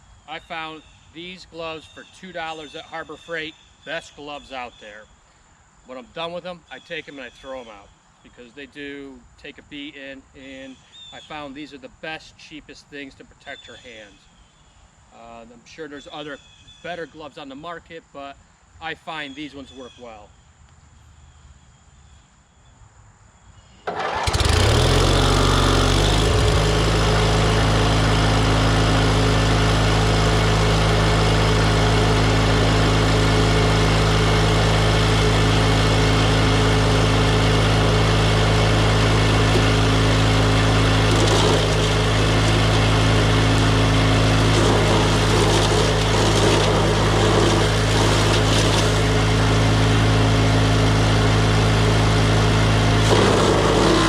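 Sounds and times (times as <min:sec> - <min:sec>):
wood chipper engine starting and running: 0:00.3 - 0:04.8, 0:23.8 - 0:54.0.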